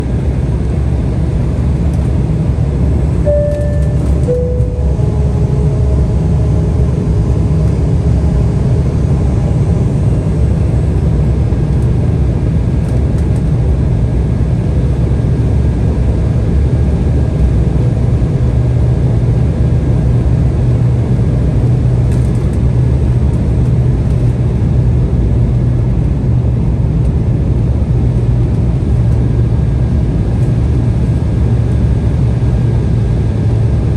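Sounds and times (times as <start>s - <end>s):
airliner cabin drone: 0.0s - 33.9s
two-note falling chime: 3.3s - 6.9s.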